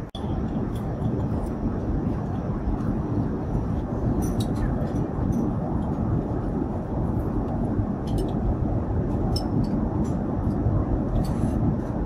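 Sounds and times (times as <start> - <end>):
airliner cabin roar: 0.0 - 12.0.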